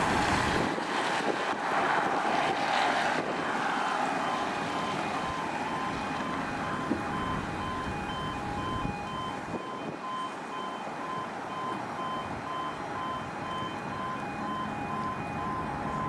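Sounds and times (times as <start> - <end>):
wind noise: 0.0 - 10.3
level crossing two-tone alarm: 4.3 - 16.0.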